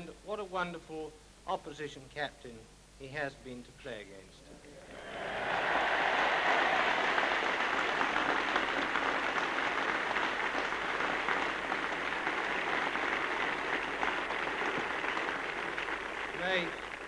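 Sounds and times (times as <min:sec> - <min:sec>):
large crowd applauding: 0:04.8 - 0:17.0.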